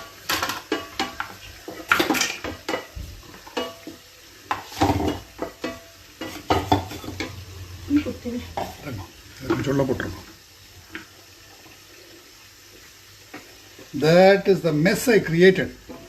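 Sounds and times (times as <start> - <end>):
metal utensils and pots knocking: 0.0 - 9.8.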